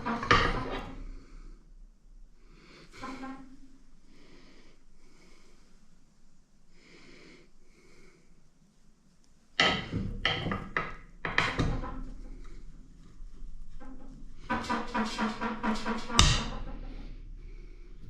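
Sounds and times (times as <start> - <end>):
metal knocks and clanks: 0.0 - 1.1, 9.6 - 12.7, 13.6 - 17.2.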